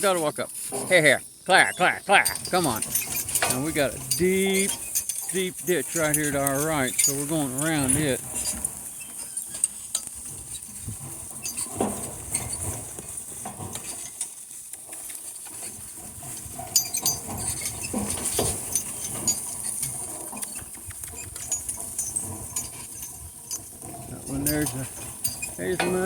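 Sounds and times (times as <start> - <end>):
harness chains clinking: 0.0 - 26.0
hooves knocking: 0.0 - 26.0.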